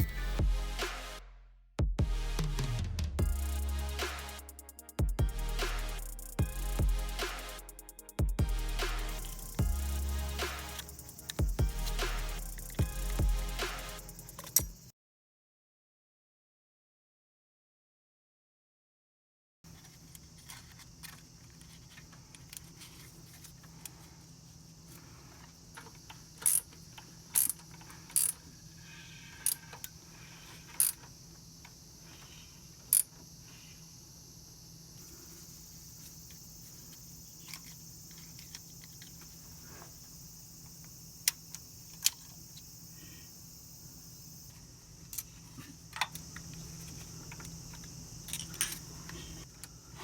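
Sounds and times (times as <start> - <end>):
steady low hum: 2.1 - 14.8.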